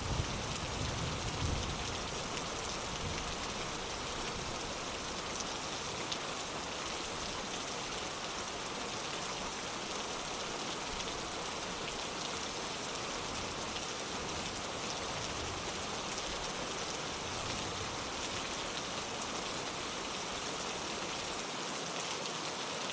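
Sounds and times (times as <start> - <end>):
heavy rain pattering: 0.0 - 7.6.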